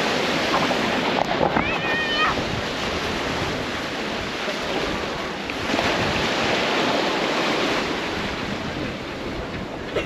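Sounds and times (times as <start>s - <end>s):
ocean surf rushing onto beach: 0.0s - 10.0s
wind buffeting microphone: 0.0s - 10.0s.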